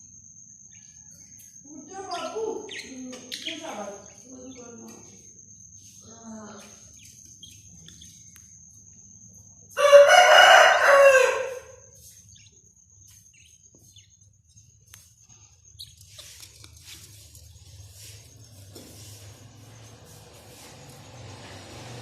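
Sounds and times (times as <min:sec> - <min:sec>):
rooster crowing: 0:09.7 - 0:11.9.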